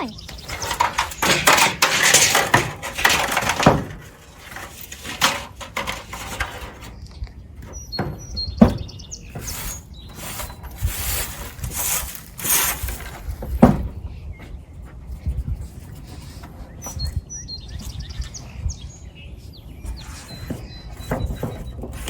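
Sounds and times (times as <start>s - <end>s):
knocks and rustling on wood: 0.3s - 6.9s, 7.6s - 14.6s.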